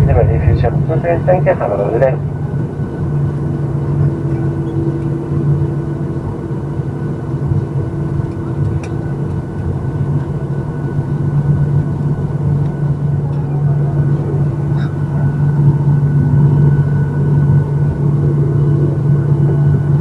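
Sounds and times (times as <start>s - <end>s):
ventilation air rushing: 0.0s - 2.8s
steady tones: 0.0s - 3.9s.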